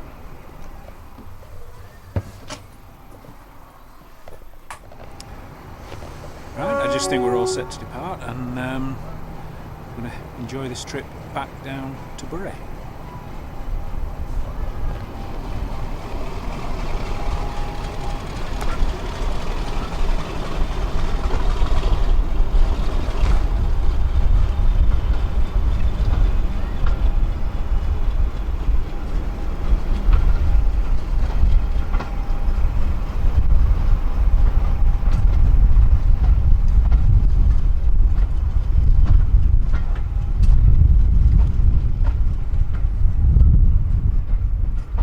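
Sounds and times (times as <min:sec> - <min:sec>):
train wheels rumbling on rail: 0:00.0 - 0:45.0
faint high whine: 0:05.0 - 0:12.0.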